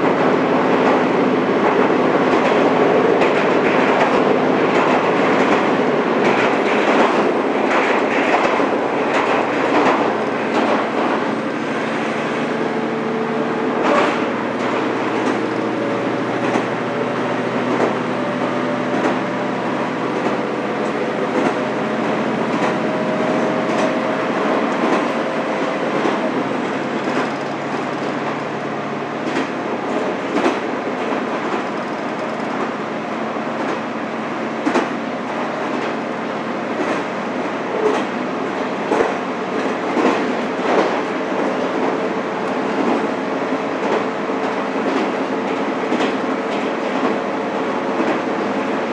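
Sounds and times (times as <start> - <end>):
train wheels rumbling on rail: 0.0 - 48.9
clicks over rail joints: 16.4 - 16.7.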